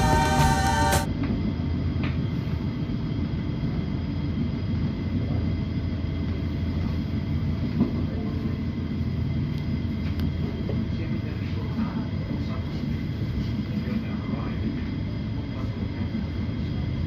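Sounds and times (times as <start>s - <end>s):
faint steady whine: 0.0s - 17.0s
train rumbling: 0.0s - 17.0s.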